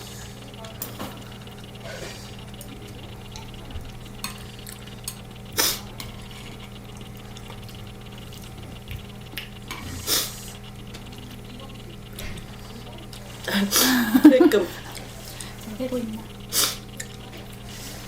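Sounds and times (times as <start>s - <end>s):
slurping noodles: 5.5s - 6.5s, 9.6s - 10.6s.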